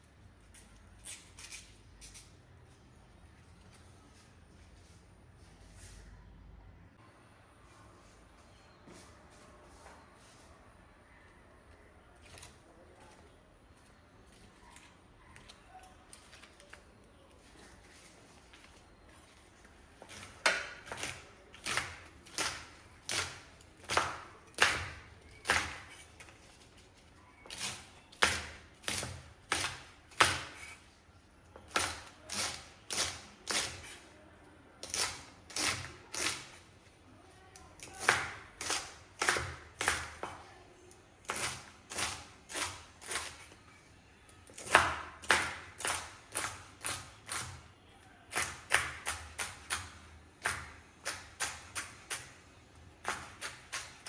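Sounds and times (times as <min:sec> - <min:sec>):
knife chopping on cutting board: 0:20.0 - 0:26.1, 0:27.5 - 0:30.8, 0:37.9 - 0:40.4, 0:48.3 - 0:52.4, 0:53.0 - 0:54.0.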